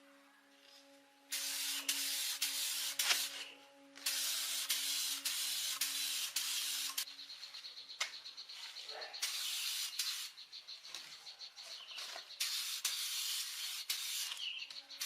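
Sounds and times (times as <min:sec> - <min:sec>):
hissing spray: 0:01.3 - 0:07.1, 0:09.2 - 0:10.4, 0:12.3 - 0:15.0.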